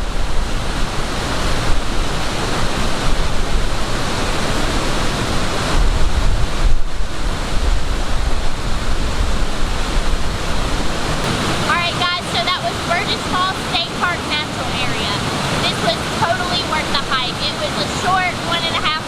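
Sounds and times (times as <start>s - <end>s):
waterfall roaring: 0.0s - 19.0s
wind buffeting microphone: 0.0s - 19.0s.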